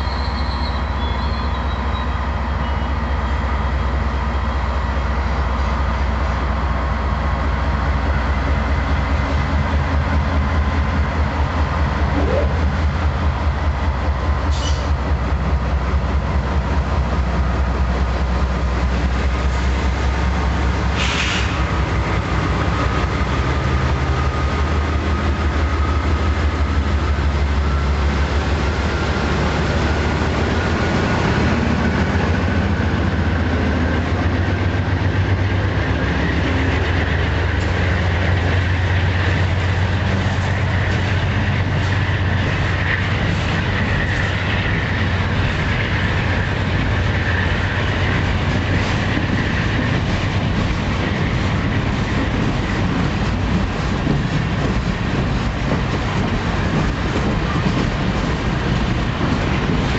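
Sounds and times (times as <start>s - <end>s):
faint high squeal: 0.0s - 3.0s
train wheels rumbling on rails: 0.0s - 59.9s.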